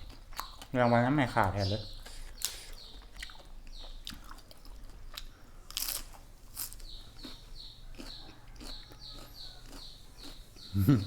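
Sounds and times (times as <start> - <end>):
crunching raw cabbage: 4.1 - 10.9.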